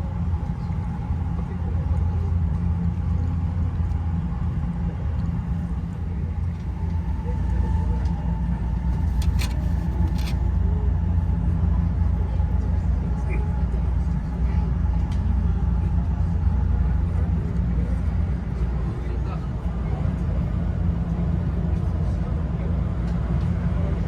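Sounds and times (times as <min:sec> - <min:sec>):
train low rumble: 0:00.0 - 0:24.0.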